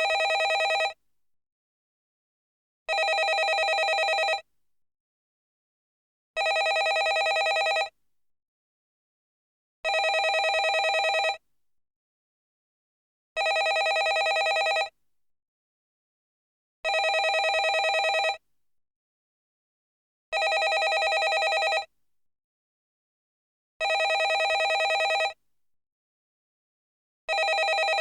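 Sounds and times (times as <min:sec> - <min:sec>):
landline telephone ringing: 0:00.0 - 0:01.0, 0:02.9 - 0:04.4, 0:06.4 - 0:07.9, 0:09.9 - 0:11.4, 0:13.4 - 0:14.9, 0:16.9 - 0:18.4, 0:20.4 - 0:21.9, 0:23.8 - 0:25.4, 0:27.3 - 0:28.0.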